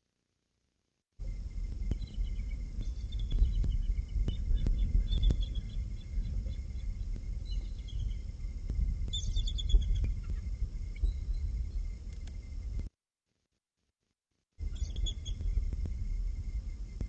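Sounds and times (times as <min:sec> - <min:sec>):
wind rumble on microphone: 0:01.2 - 0:12.9, 0:14.6 - 0:17.0
bird chirps: 0:01.9 - 0:08.3, 0:09.1 - 0:11.9, 0:14.6 - 0:15.7
faint clicks: 0:12.1 - 0:12.9.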